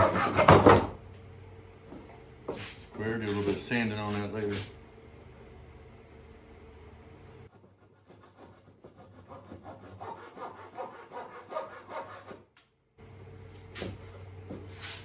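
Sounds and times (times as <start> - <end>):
hand saw cutting wood: 0.0 - 0.9, 7.5 - 12.4.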